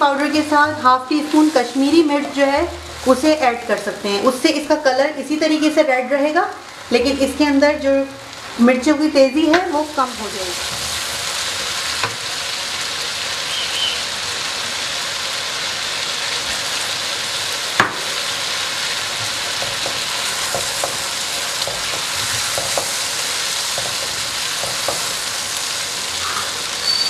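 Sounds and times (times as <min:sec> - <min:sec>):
chicken sizzling in a pan: 0:00.0 - 0:27.0
sharp knock: 0:17.8 - 0:18.1.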